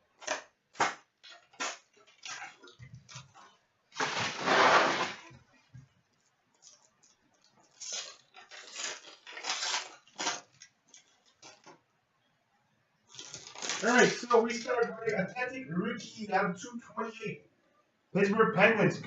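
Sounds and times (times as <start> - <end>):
packaging tearing: 4.0 - 5.2, 7.7 - 11.7, 13.1 - 14.9
packaging crinkling: 6.6 - 11.7, 13.1 - 15.0.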